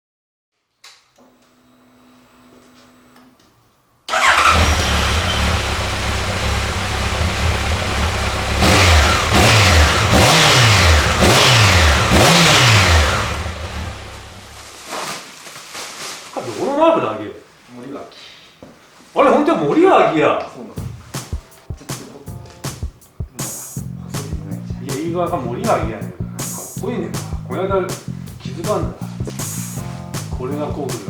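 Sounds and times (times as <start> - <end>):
motorcycle engine idling and revving: 4.1 - 14.6.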